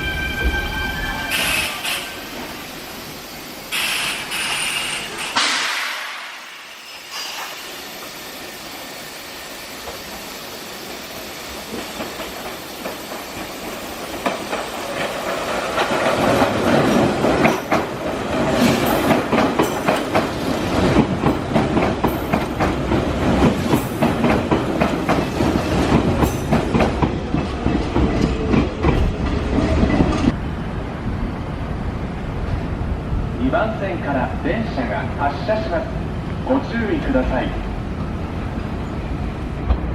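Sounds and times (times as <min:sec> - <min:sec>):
train rumble: 0:10.9 - 0:39.9.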